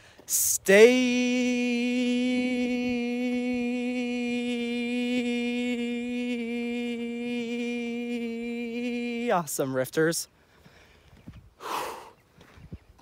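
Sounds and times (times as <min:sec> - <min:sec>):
person singing a long held note: 0:00.3 - 0:09.5.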